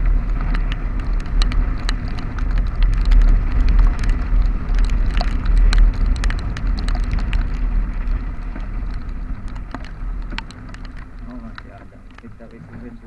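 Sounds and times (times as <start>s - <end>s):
raindrops hitting microphone: 0.0s - 13.0s
vehicle wind and road noise: 0.0s - 13.0s.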